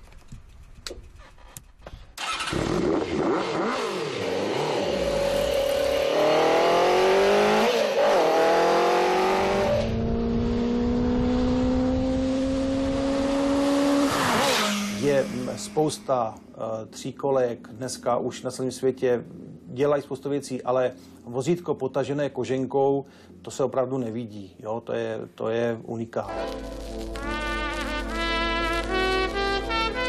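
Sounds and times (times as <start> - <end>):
two-stroke car engine revving: 2.2 - 16.0.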